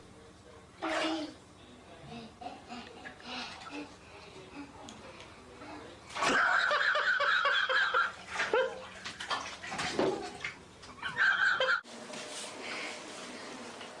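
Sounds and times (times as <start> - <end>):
water running in a bathtub: 2.2 - 4.8, 5.6 - 14.0.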